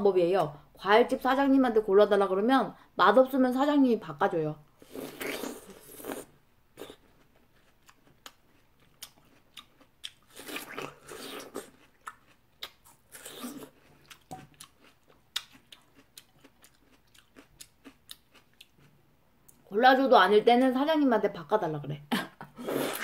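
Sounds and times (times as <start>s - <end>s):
chewing and biting: 6.8s - 19.0s
small mouth clicks: 11.8s - 14.8s.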